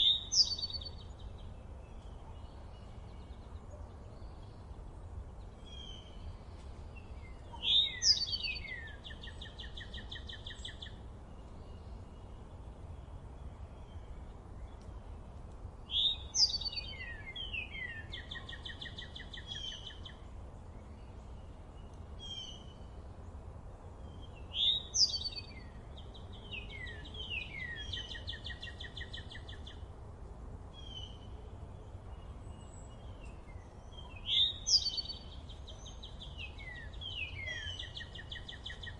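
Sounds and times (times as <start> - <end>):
songbird whistling and trilling: 0.0 - 1.1, 7.5 - 11.0, 15.9 - 20.2, 24.5 - 25.7, 26.5 - 29.7, 33.2 - 38.9.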